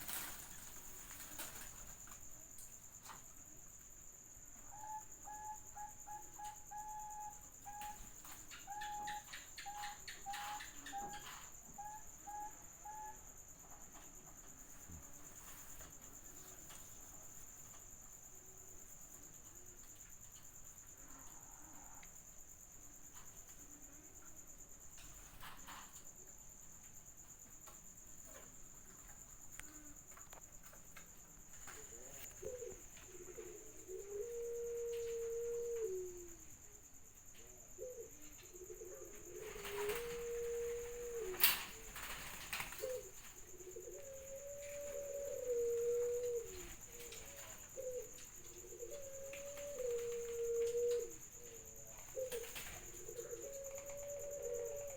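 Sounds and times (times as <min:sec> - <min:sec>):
dove cooing: 0:00.0 - 0:02.4, 0:04.6 - 0:13.4, 0:31.6 - 0:36.8, 0:37.4 - 0:54.9
cricket trilling: 0:00.0 - 0:54.9.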